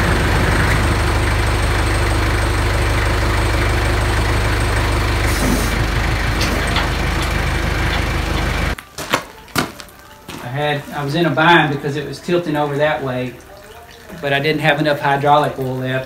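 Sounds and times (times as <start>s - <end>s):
tractor diesel engine running: 0.0s - 8.8s.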